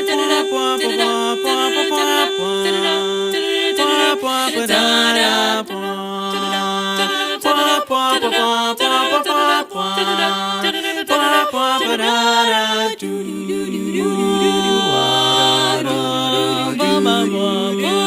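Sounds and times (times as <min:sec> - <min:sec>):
voices singing in harmony: 0:00.0 - 0:18.0
held low note: 0:14.1 - 0:17.3.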